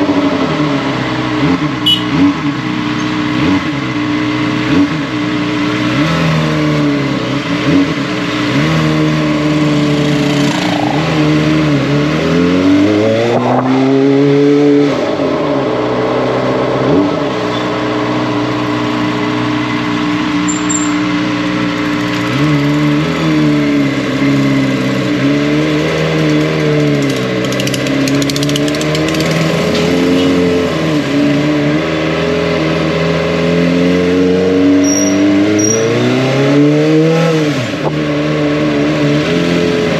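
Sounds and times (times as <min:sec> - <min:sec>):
motorcycle engine revving: 0:00.0 - 0:39.9
wind rush: 0:10.1 - 0:17.5.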